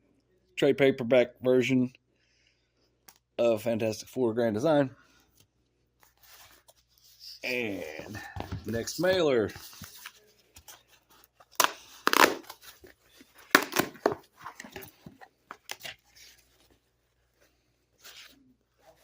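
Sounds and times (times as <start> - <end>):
mailer ripping open: 11.5 - 14.6.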